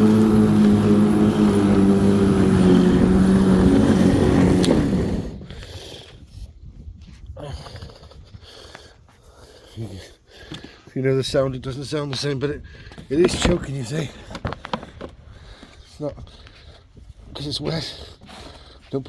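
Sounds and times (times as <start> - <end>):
electric lawnmower motor humming: 0.0 - 5.5.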